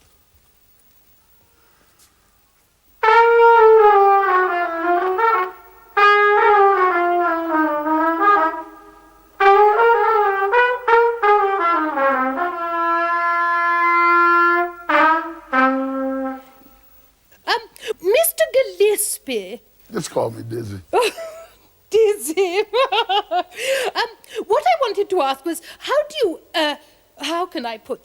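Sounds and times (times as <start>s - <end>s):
trumpet playing jazz solo: 3.0s - 16.9s.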